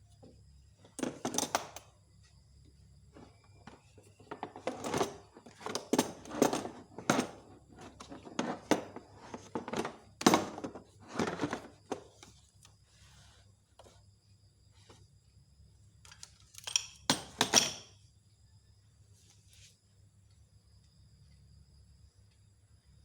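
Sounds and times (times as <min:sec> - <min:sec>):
hard items knocking and clattering: 0:03.2 - 0:12.3, 0:16.6 - 0:18.0.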